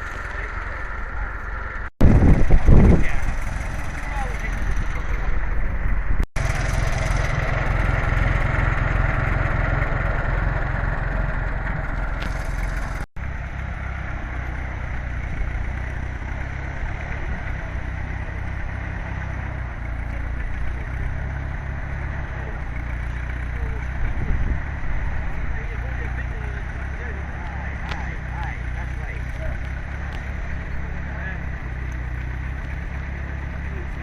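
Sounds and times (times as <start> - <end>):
tractor engine running: 0.0 - 34.0.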